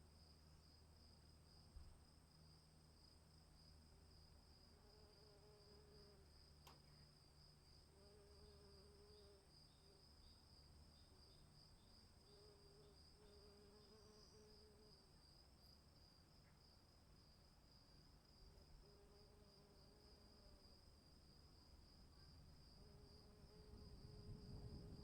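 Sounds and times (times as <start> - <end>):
crickets chirping: 0.0 - 25.0
faint click: 6.6 - 7.0.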